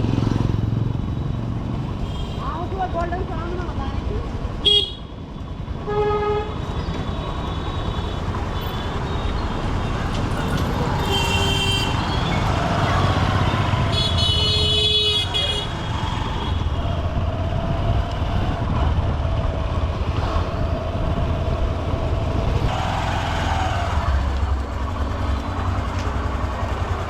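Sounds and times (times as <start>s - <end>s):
city traffic: 0.0s - 27.0s
vehicle horn: 4.6s - 5.0s, 5.9s - 6.6s, 11.0s - 12.3s, 13.9s - 15.8s.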